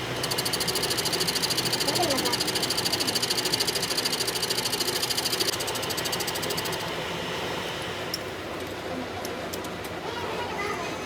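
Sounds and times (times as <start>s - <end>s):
fast even machine ticking: 0.0s - 6.9s
mechanical running noise: 0.0s - 10.0s.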